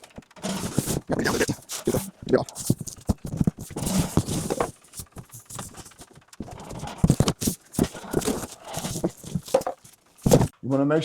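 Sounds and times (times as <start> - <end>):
cardboard knocks and scrapes: 0.0 - 10.5.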